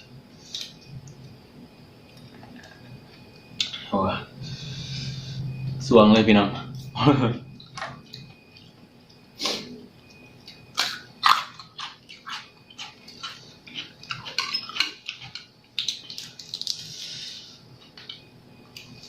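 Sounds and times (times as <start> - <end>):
wet chewing and smacking: 10.0 - 16.9.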